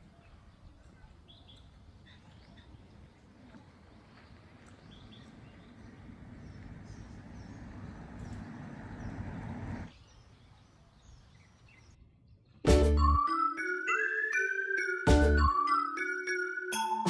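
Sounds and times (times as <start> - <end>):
small birds chirping: 0.0 - 12.7.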